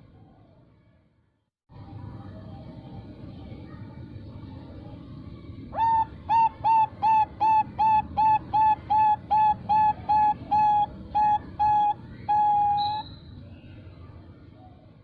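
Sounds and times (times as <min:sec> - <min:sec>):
dove cooing: 0:05.8 - 0:13.0.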